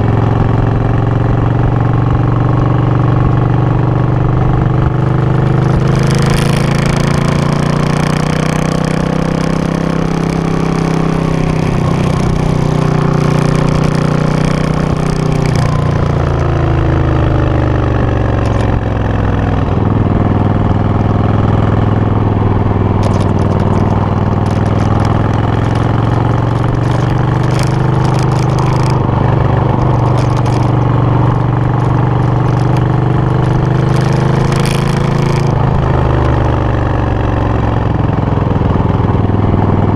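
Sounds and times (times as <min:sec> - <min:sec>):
motorcycle engine idling: 0:11.0 - 0:39.2.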